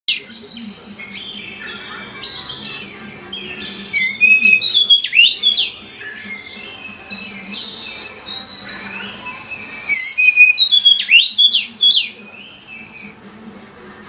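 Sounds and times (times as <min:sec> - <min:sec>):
songbird singing: 0:00.1 - 0:13.3.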